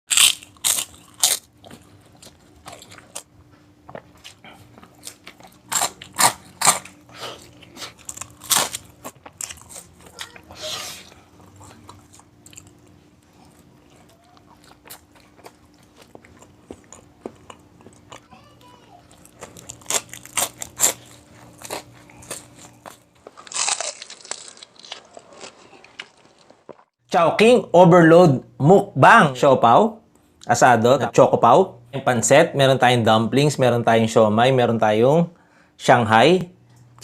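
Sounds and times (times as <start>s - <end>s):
crunchy chewing of fried food: 0.1s - 27.0s.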